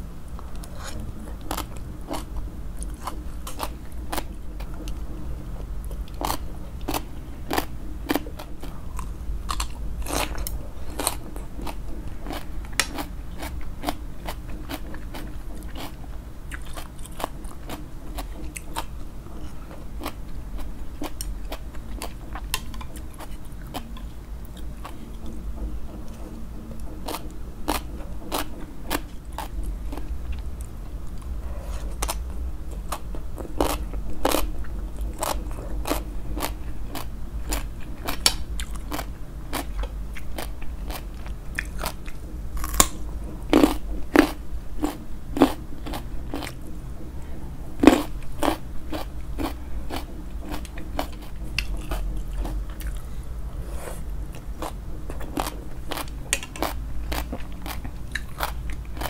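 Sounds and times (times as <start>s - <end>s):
low steady rumble: 0.0s - 59.0s
chewing crisp salad: 0.3s - 46.7s, 47.8s - 59.0s.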